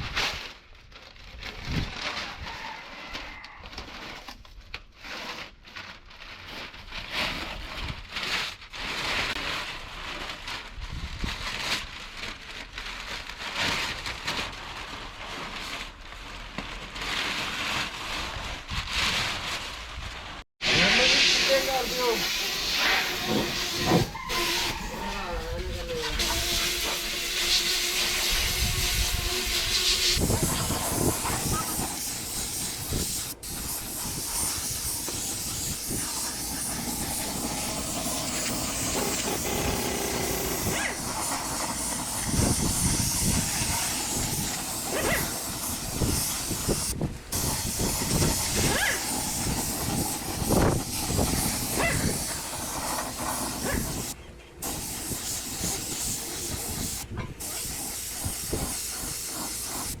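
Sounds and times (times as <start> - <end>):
paint spray gun hissing: 20.6 - 60.0.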